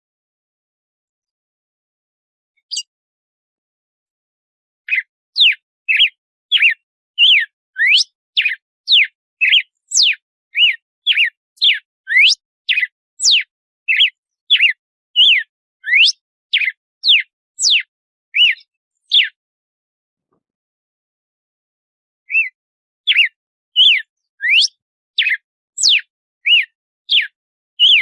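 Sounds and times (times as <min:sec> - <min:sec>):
bird singing whistled notes: 0:02.6 - 0:02.9, 0:04.9 - 0:19.4, 0:22.3 - 0:28.0.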